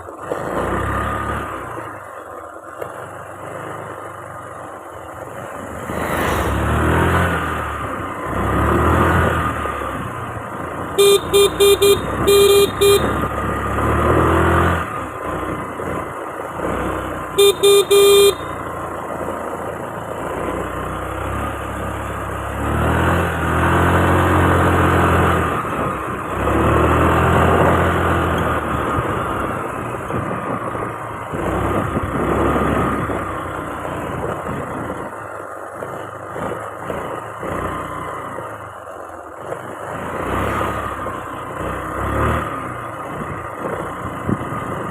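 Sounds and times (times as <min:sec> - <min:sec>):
vehicle engine and road noise: 0:00.0 - 0:44.9
vehicle horn short beeps: 0:11.0 - 0:13.5, 0:17.3 - 0:18.7.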